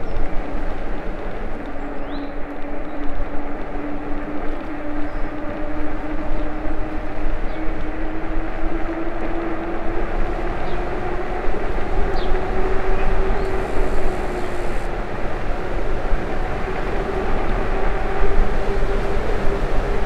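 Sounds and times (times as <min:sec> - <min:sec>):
wind on microphone: 0:00.0 - 0:20.0
tyres rumbling on road: 0:00.3 - 0:20.0
steady hum: 0:12.5 - 0:14.9.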